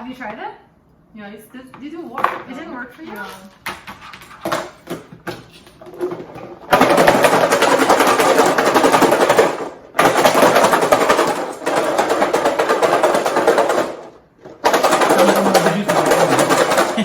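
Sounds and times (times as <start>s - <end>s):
garlic rattling in container: 14.6s - 17.0s.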